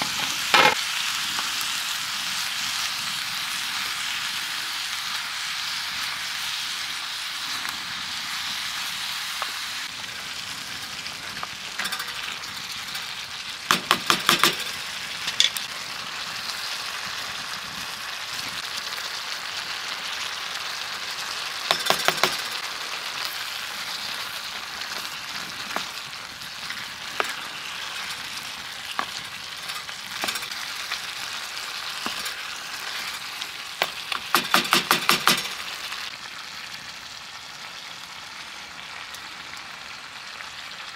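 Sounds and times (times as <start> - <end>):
food sizzling in a hot pan: 0.0 - 40.9
utensil clicking against pan: 13.7 - 14.7, 21.7 - 22.5, 33.8 - 35.6.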